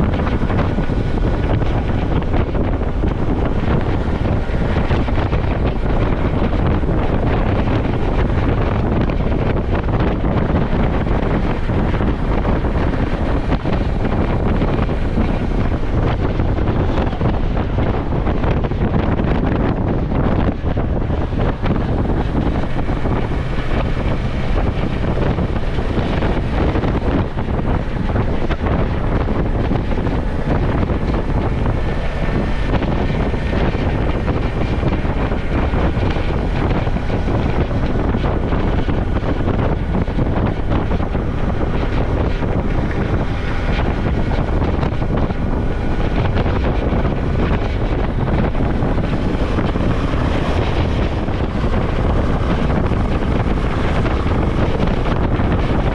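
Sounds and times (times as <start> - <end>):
motorcycle engine running: 0.0 - 55.9
wind on microphone: 0.0 - 55.9.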